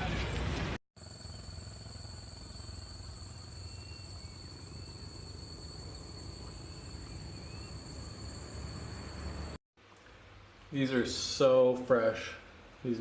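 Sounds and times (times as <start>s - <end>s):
faint chirps: 1.0s - 9.6s
shrill insect chorus: 1.0s - 9.6s.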